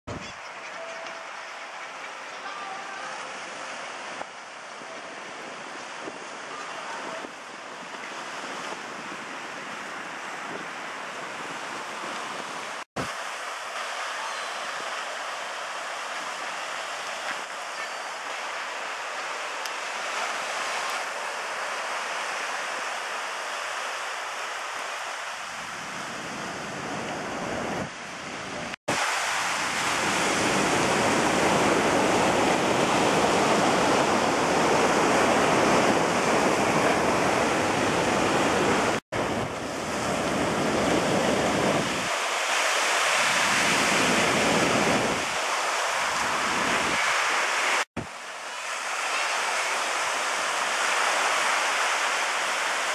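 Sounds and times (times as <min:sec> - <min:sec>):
ocean surf rushing: 0:00.1 - 0:52.9
wind on microphone: 0:25.5 - 0:42.2, 0:42.9 - 0:48.1.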